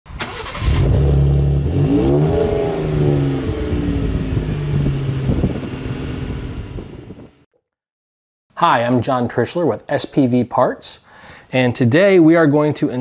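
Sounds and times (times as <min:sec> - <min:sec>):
engine revving: 0:00.2 - 0:07.4.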